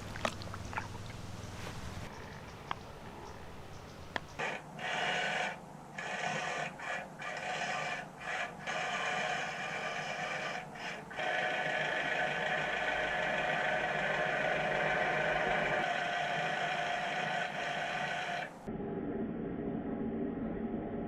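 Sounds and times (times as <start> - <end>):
small electric motor whirring: 4.4 - 18.5.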